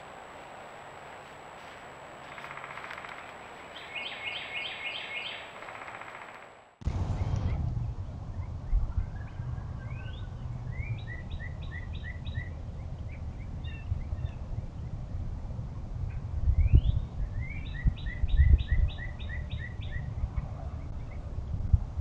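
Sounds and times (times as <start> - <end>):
songbird singing: 0.0 - 15.2, 16.0 - 21.4
wind on microphone: 6.8 - 22.0.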